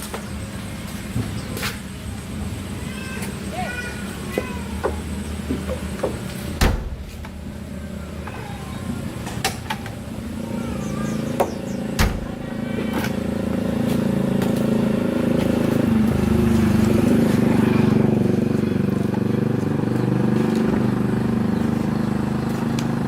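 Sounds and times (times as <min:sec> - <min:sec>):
vehicle engine running: 0:00.0 - 0:23.0
sharp knocks: 0:04.8 - 0:07.4.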